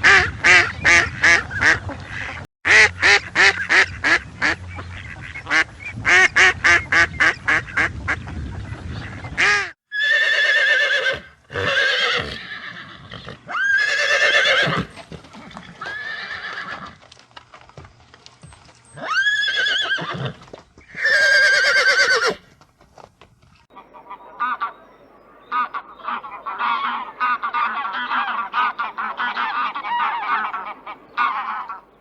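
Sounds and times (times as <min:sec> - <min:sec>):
duck quacking rapidly: 0:00.0 - 0:08.2, 0:09.3 - 0:09.8
horse neighing: 0:09.9 - 0:17.0, 0:19.0 - 0:22.4.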